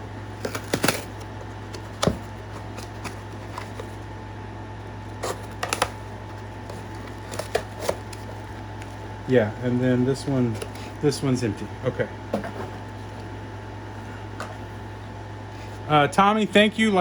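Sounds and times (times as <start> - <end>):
air conditioner hum: 0.0 - 17.0
box clicks and rustles: 0.2 - 4.0, 5.1 - 9.0.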